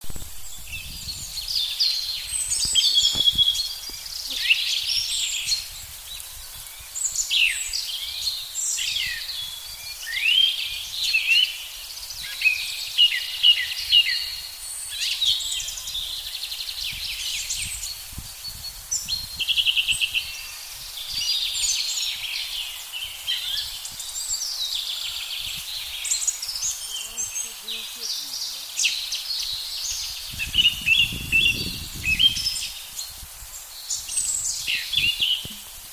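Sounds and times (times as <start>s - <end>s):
songbirds singing and calling: 0.0s - 35.9s.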